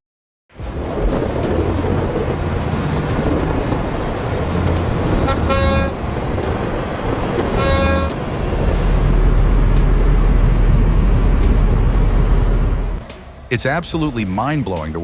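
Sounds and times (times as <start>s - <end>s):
low engine rumble: 0.6s - 15.0s
truck horn blasts: 5.1s - 6.0s, 7.4s - 8.4s.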